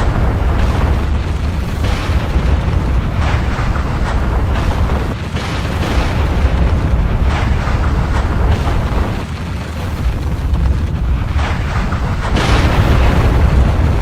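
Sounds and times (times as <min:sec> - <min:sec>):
deep volcanic rumble: 0:00.0 - 0:14.0
explosion bursts and crackles: 0:00.0 - 0:14.0.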